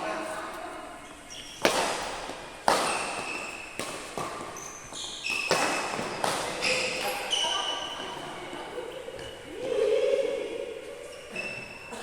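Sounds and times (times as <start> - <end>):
short high squeaks: 1.3 - 1.7, 4.6 - 6.0.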